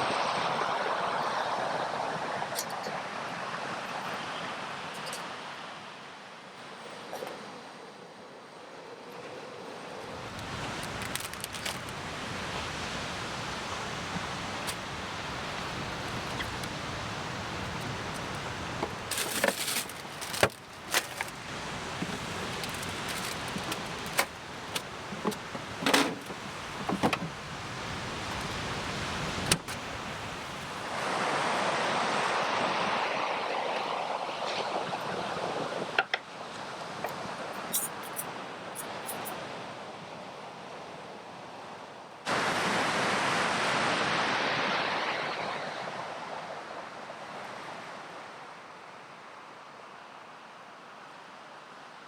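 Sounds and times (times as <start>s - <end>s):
camp gear clicking and knocking: 10.4s - 11.9s, 17.8s - 27.4s.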